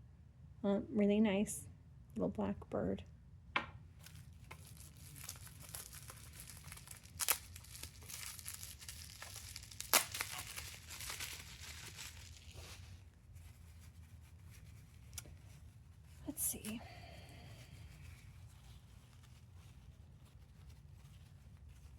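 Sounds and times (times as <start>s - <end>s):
bubble wrap and paper crinkling: 4.0s - 21.9s
sharp tearing snaps: 6.6s - 12.5s.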